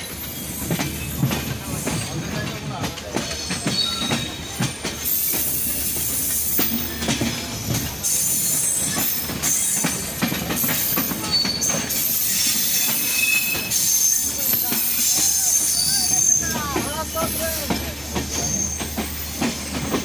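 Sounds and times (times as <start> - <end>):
train wheels clacking over rail joints: 0.0 - 20.0
high-pitched wheel squeals: 11.0 - 16.6.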